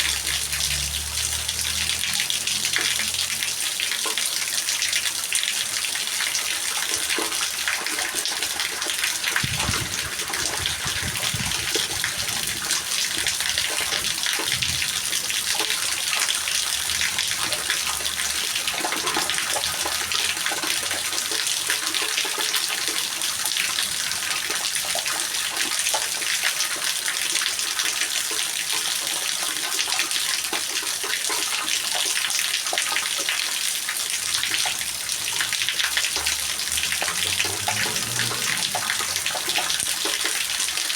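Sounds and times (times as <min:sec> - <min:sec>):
heavy rain: 0:00.0 - 0:31.2, 0:31.9 - 0:40.9.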